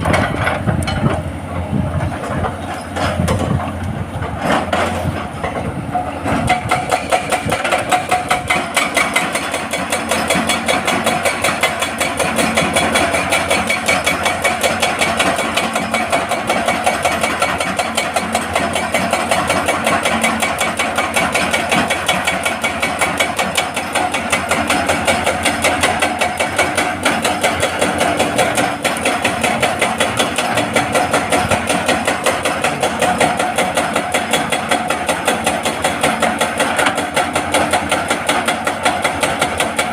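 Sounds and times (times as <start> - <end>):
diesel engine droning: 0.0 - 8.9
hydraulic breaker hammering rock: 0.0 - 39.9.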